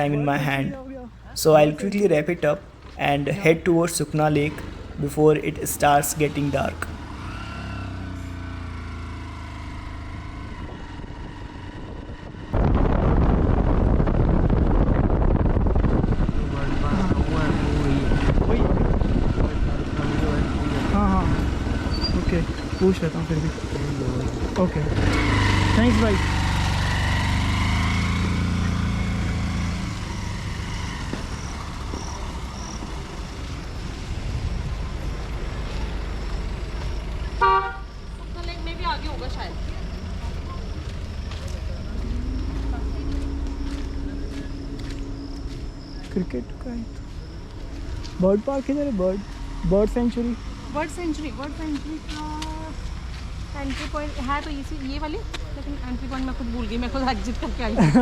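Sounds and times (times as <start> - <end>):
vehicle engine running: 0.0 - 58.0
loud low rumbling: 8.1 - 53.5
short car horn honk: 37.4 - 37.9.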